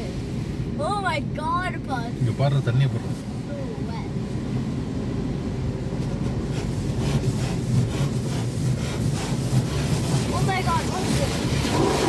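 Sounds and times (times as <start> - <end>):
car wash machinery hum: 0.0 - 12.0
water jets spattering on car: 6.4 - 12.0.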